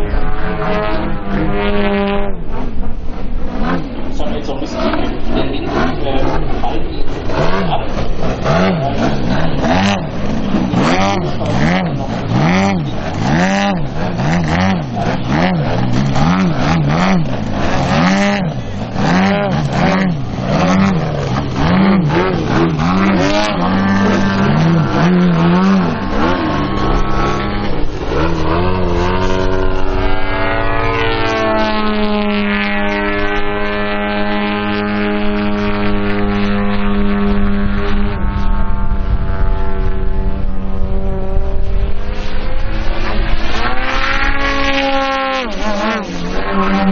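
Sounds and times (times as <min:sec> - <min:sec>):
model plane propeller engines: 0:00.0 - 0:46.9.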